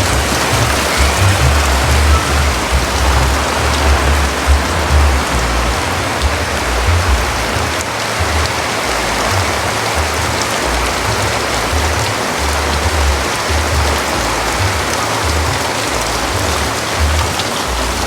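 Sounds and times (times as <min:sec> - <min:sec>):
heavy rain: 0:00.0 - 0:18.0
wind buffeting microphone: 0:00.0 - 0:18.0.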